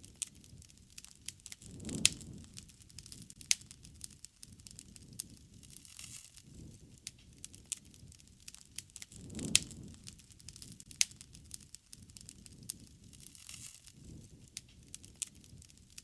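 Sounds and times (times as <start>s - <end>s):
campfire crackling and popping: 0.0s - 16.0s
low rumble of burning wood: 0.0s - 16.0s.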